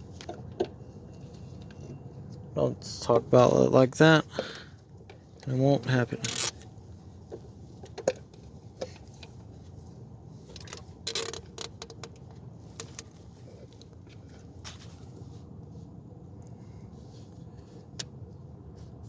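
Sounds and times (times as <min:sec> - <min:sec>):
low steady hum: 0:00.0 - 0:19.0
hand tools clicking and knocking: 0:06.2 - 0:06.5, 0:12.8 - 0:13.1.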